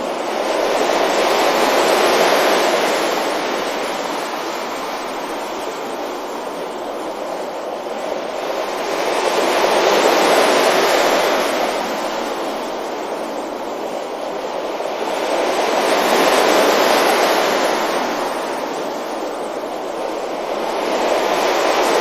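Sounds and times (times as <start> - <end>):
ocean waves washing onto beach: 0.0 - 22.0.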